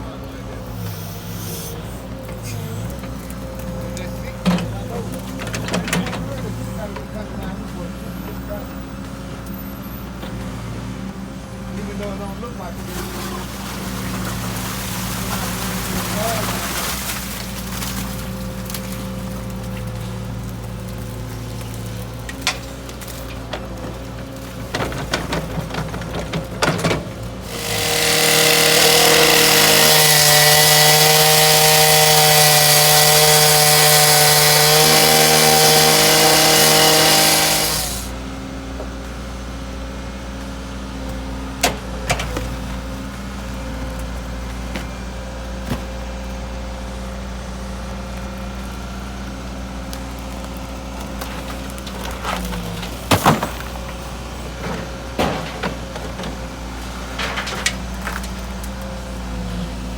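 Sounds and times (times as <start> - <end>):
engine running: 0.0 - 59.9
power saw cutting: 0.1 - 7.5, 11.8 - 24.6, 27.3 - 38.2.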